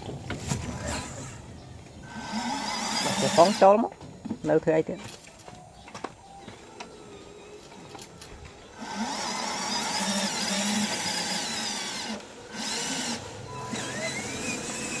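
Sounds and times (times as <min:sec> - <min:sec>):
toy electric motor whirring: 0:02.0 - 0:03.8, 0:07.5 - 0:15.0.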